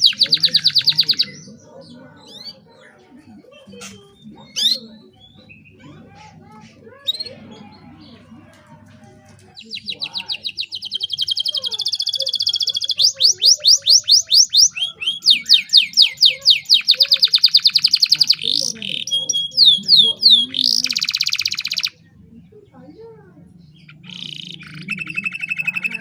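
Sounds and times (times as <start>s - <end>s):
canary singing trills: 0.0s - 8.3s, 9.5s - 26.0s.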